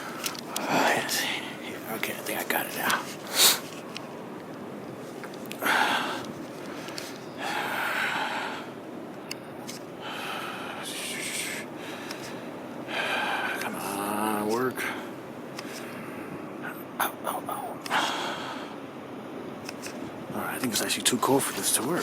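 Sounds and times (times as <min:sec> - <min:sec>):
heavy breathing: 0:00.0 - 0:03.8, 0:05.5 - 0:08.8, 0:10.0 - 0:18.8
background hiss: 0:00.0 - 0:22.0.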